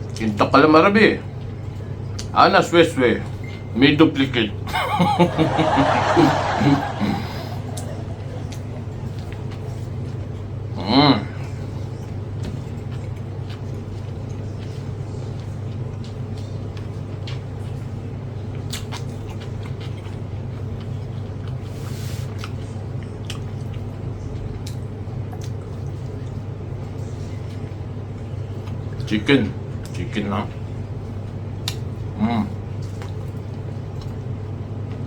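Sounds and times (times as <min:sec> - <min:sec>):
steady low hum: 0:00.0 - 0:35.0
chewing clicks and taps: 0:18.5 - 0:21.7, 0:22.3 - 0:26.4, 0:31.6 - 0:31.9, 0:32.8 - 0:35.0.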